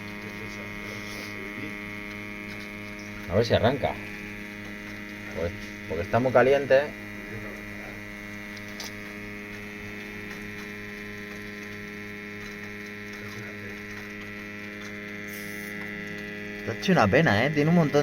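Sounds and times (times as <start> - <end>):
boiler electric hum: 0.0 - 18.0.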